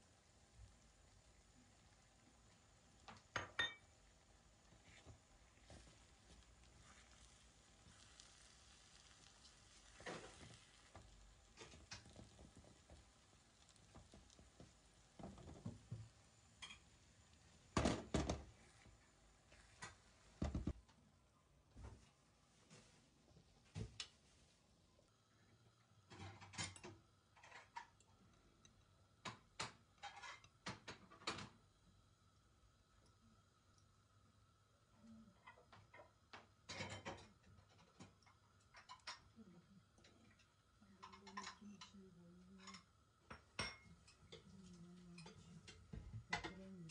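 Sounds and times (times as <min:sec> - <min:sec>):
kitchen utensils tapping and scraping: 0:03.1 - 0:03.9, 0:16.6 - 0:17.0, 0:26.1 - 0:28.0, 0:29.2 - 0:31.6, 0:35.5 - 0:39.3, 0:40.0 - 0:42.0.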